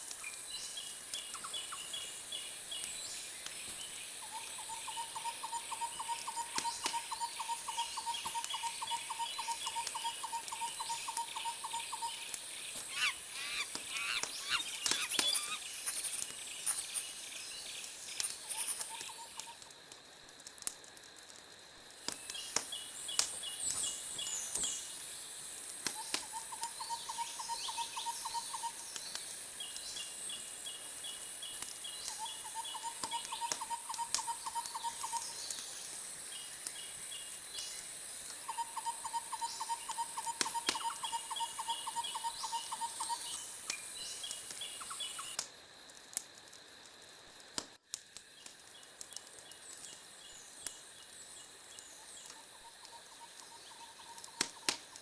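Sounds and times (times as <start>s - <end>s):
steady high hiss: 0.0s - 55.0s
bird trills: 4.7s - 15.8s
sharp clicks: 13.6s - 15.6s.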